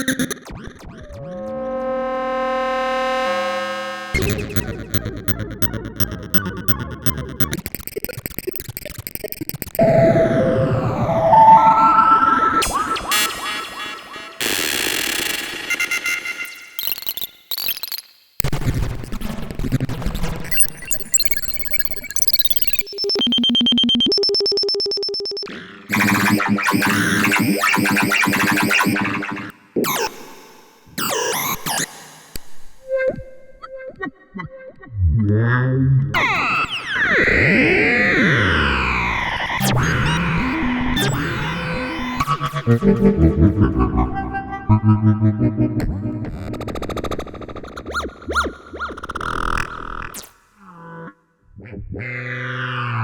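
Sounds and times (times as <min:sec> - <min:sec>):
buzzy synthesizer tone: 0:00.7 - 0:07.9, 0:09.8 - 0:16.7, 0:22.9 - 0:29.6, 0:36.2 - 0:46.9
evenly pulsing synth sound: 0:00.8 - 0:07.8, 0:09.8 - 0:16.0, 0:36.2 - 0:46.4
rapid repeated synth hits: 0:04.2 - 0:11.0.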